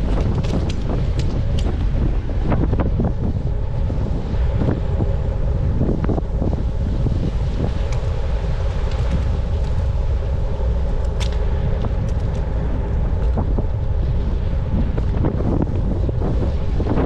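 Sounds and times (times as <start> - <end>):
bicycle rolling on road: 0.0 - 3.2, 7.2 - 13.9
wind on microphone: 0.0 - 17.0.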